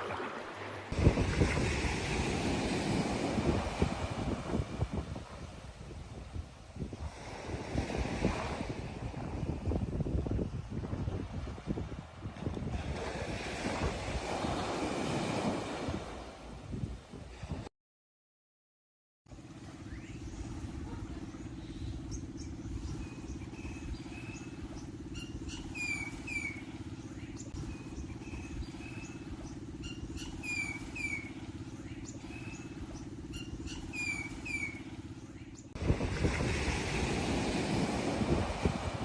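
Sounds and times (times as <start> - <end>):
surf: 0.0 - 17.7, 35.8 - 39.0
wind: 0.0 - 17.7, 19.3 - 39.0
bird chirping: 33.3 - 34.8.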